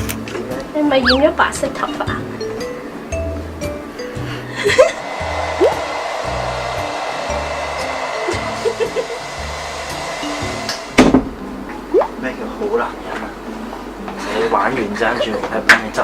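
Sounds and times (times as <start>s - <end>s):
hair dryer blowing: 4.6s - 11.1s.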